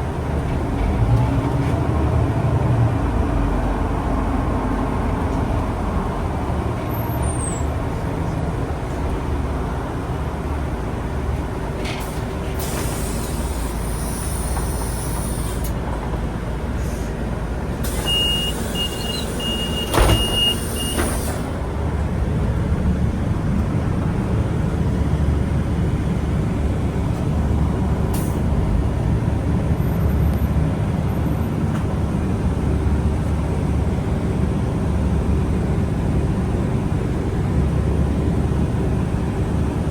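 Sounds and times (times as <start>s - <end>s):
bus engine and road rumble: 0.0s - 39.9s
pneumatic air hissing: 12.0s - 15.8s, 17.8s - 21.6s
short beeps: 18.0s - 21.1s
thump: 19.8s - 21.4s.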